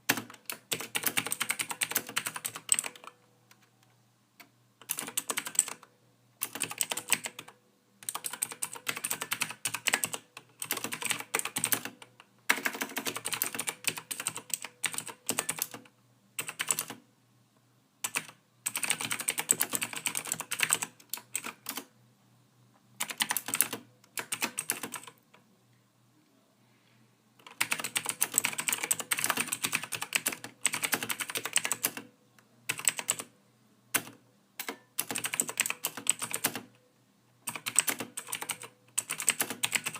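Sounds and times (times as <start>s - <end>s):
keyboard typing: 0.0s - 3.7s, 4.4s - 17.0s, 18.0s - 21.9s, 23.0s - 25.4s, 27.4s - 32.1s, 32.7s - 33.3s, 33.9s - 36.8s, 37.4s - 39.9s.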